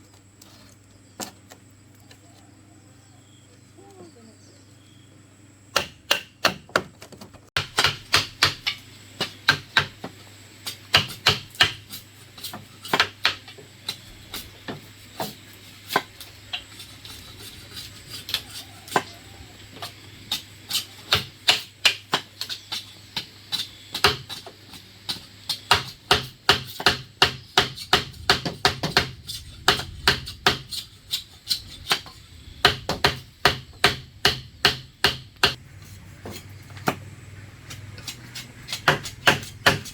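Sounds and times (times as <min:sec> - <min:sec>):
hand tool striking bamboo: 0:05.7 - 0:07.0, 0:07.6 - 0:35.6, 0:37.7 - 0:39.9.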